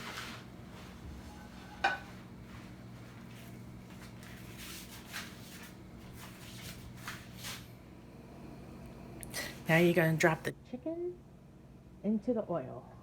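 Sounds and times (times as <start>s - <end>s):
steady low hum: 0.0s - 13.0s
kitchenware clinking: 1.3s - 2.2s.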